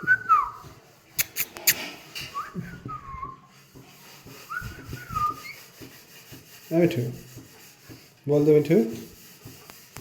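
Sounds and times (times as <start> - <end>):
sliding whistles: 0.0 - 3.5, 4.3 - 5.8.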